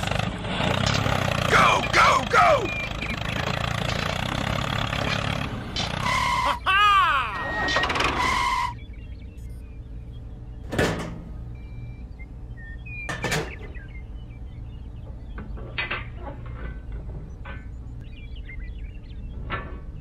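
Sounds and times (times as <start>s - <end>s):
low steady hum: 6.2s - 20.0s.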